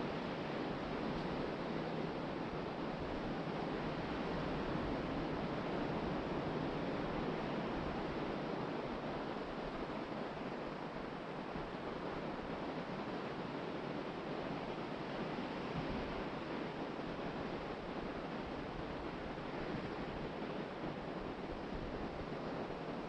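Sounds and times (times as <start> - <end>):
wind: 0.0 - 23.0.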